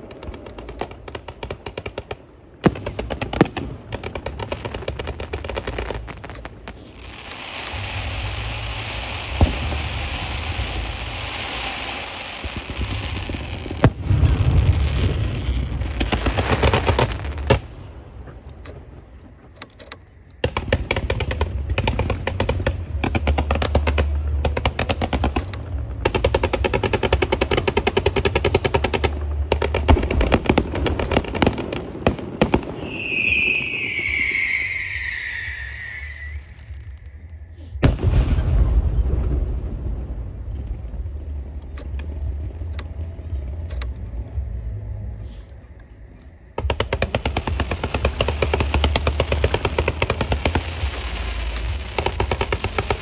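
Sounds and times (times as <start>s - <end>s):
firecrackers crackling: 0.0s - 19.6s, 20.4s - 41.0s, 46.6s - 53.0s
whistling tone sliding down: 32.7s - 37.1s.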